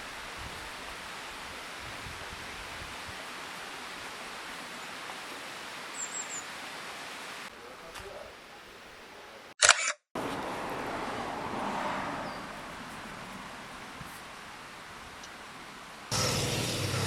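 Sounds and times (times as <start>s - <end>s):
outdoor ambience: 4.2s - 17.0s.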